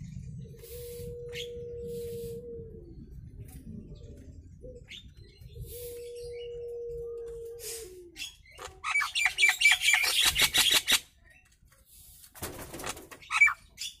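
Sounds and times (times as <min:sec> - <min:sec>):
bird chattering sharp notes: 0:08.6 - 0:11.1.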